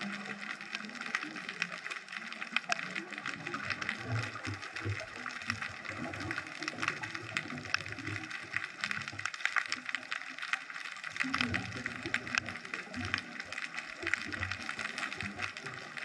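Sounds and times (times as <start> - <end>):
underwater bubbling gurgles: 0.0 - 16.0
underwater crackle of clicks: 0.0 - 16.0.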